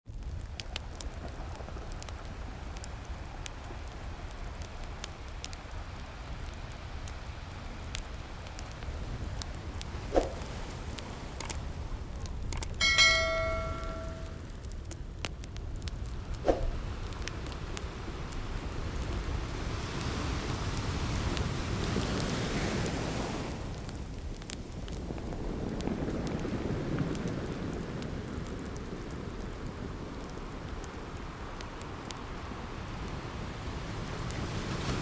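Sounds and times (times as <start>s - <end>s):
wood fire crackling: 0.1s - 35.0s
ocean waves surging: 12.8s - 14.4s.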